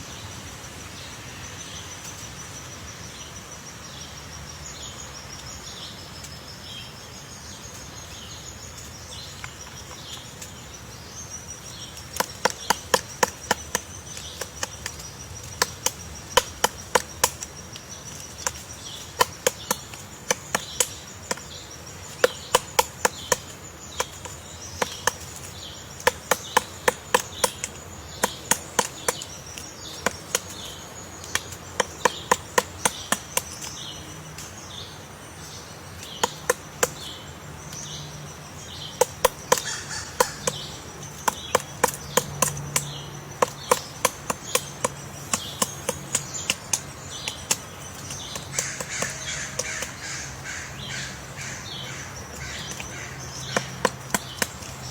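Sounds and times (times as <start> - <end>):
woodpecker pecking wood: 11.2 - 34.7, 35.5 - 54.9.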